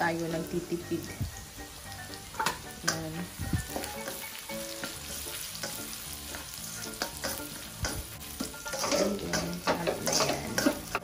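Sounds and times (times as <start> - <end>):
garlic and onion sizzling: 0.0 - 11.0
spatula scraping a wok: 3.6 - 11.0.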